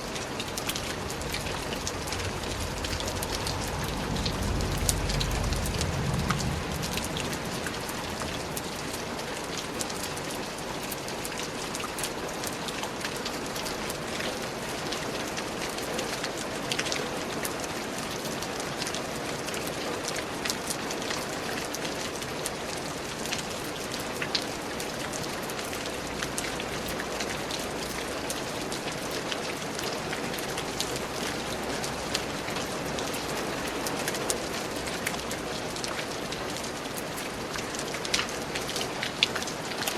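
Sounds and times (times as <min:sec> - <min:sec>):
rain on vegetation: 0:00.0 - 0:39.9.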